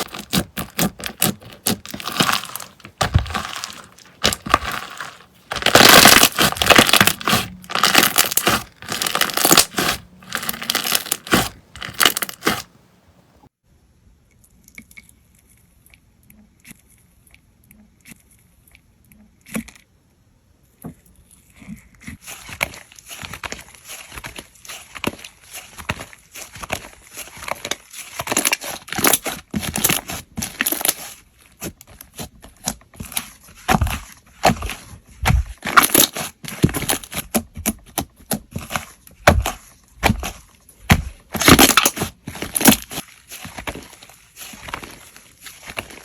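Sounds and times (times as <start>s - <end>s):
slime crackling and popping: 0.0s - 12.7s, 22.4s - 46.0s.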